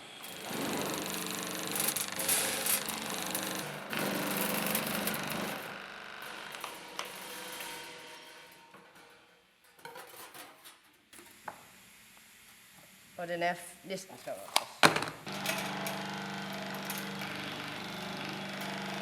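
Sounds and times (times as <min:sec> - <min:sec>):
power tool cutting steel sheet: 0:00.0 - 0:08.6, 0:15.3 - 0:19.0.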